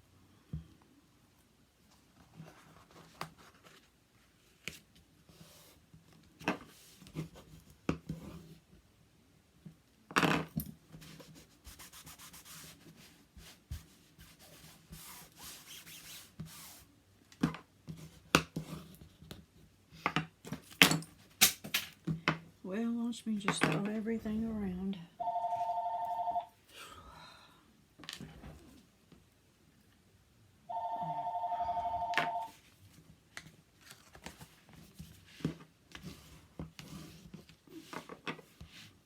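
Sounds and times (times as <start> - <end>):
paper being rubbed: 11.2 - 16.8.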